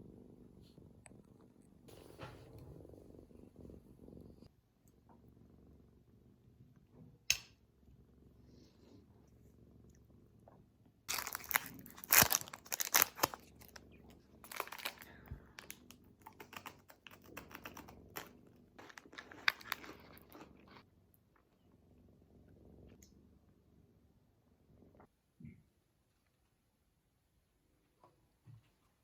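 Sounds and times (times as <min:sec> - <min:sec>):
crinkling and rustling: 0:11.1 - 0:20.8.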